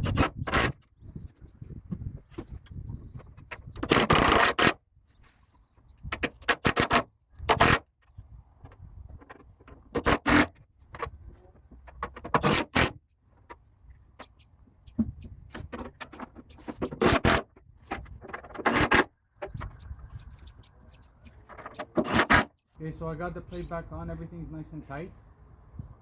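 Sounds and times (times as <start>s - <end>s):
tools scraping and clicking on metal: 15.6s - 22.7s.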